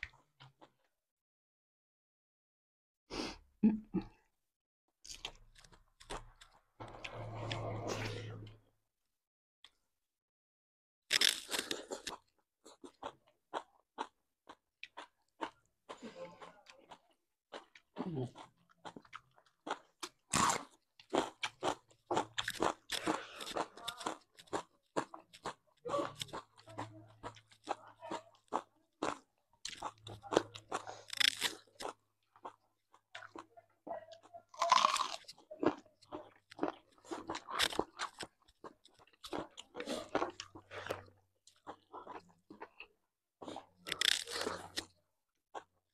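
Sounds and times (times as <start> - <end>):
chewing and crunching food: 5.0 - 7.8, 11.1 - 45.9.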